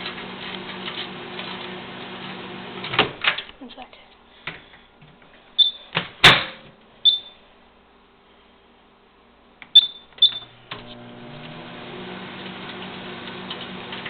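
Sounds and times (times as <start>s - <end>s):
microwave oven humming: 0.0s - 3.3s, 9.7s - 14.0s
microwave keypad beeping: 5.6s - 5.9s, 7.0s - 7.4s, 9.7s - 10.5s.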